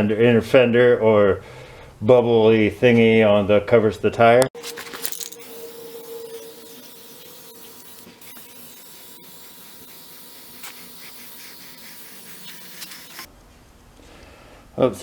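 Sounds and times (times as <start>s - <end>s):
aerosol can spraying hiss: 5.5s - 13.3s.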